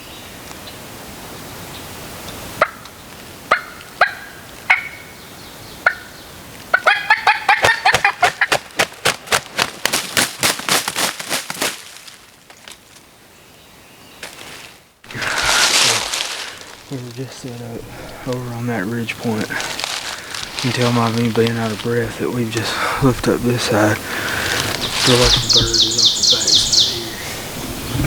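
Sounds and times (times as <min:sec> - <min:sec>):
turkey calls: 0:03.5 - 0:05.2, 0:05.8 - 0:08.7, 0:15.1 - 0:28.0.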